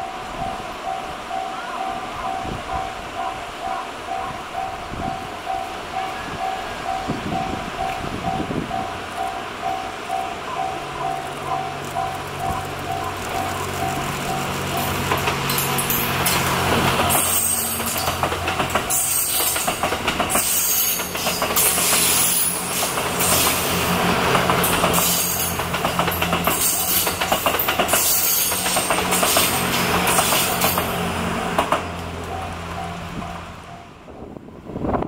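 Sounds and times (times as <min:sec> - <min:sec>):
train rumble: 0:00.0 - 0:35.0
wheels clattering over rail joints: 0:07.4 - 0:33.4.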